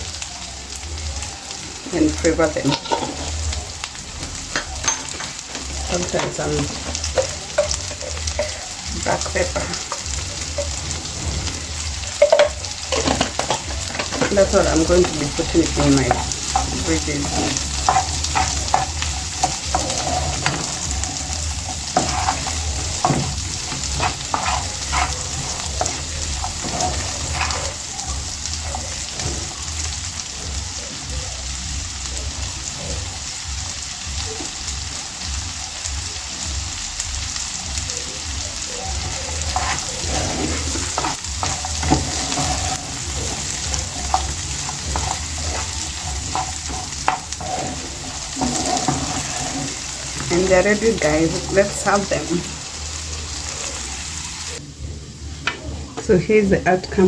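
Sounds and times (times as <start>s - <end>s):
vegetables sizzling in a pan: 0.0s - 57.0s.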